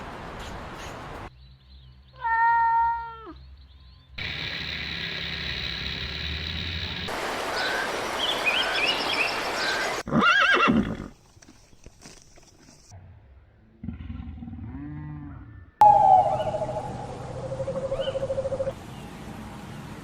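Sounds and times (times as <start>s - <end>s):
loud wavering animal call: 14.6s - 18.8s
high trilling: 15.8s - 18.7s.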